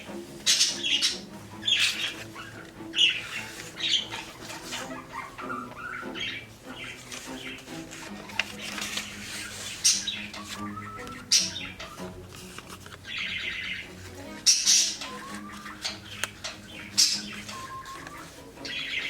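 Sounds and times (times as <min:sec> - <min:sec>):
background music with held notes: 0:00.0 - 0:19.0
bird squawking and chirping: 0:00.0 - 0:19.0.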